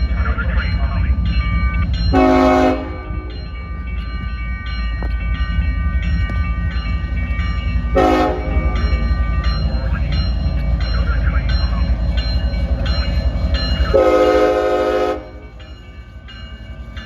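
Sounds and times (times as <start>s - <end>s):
rumble of passing train: 0.0s - 17.0s
locomotive horn blasts: 2.1s - 3.3s, 8.0s - 8.8s, 13.9s - 15.4s.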